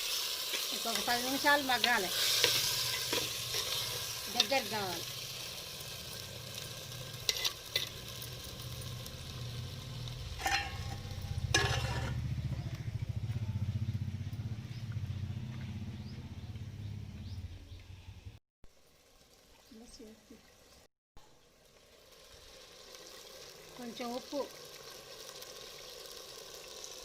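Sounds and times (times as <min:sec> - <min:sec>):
chicken sizzling in a pan: 0:00.0 - 0:12.6, 0:18.6 - 0:27.0.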